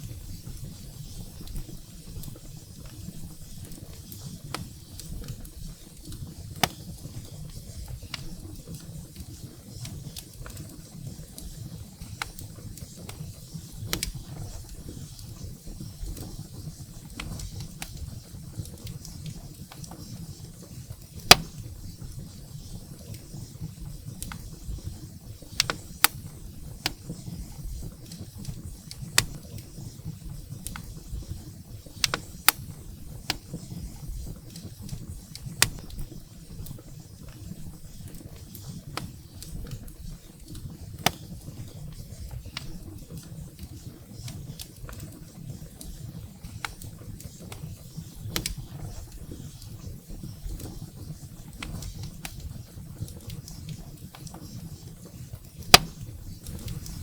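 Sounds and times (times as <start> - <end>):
firewood crackling and popping: 0.0 - 57.0.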